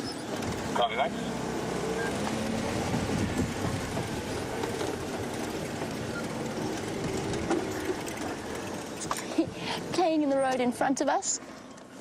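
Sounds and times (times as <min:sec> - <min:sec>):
road noise: 0:00.0 - 0:12.0
vehicle engine running: 0:00.3 - 0:10.4.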